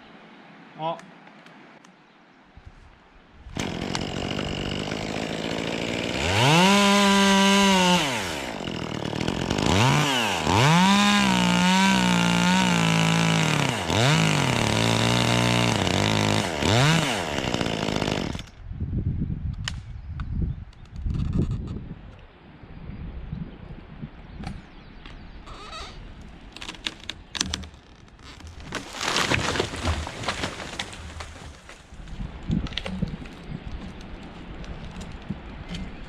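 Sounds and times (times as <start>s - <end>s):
chainsaw idling and revving: 3.6s - 18.6s.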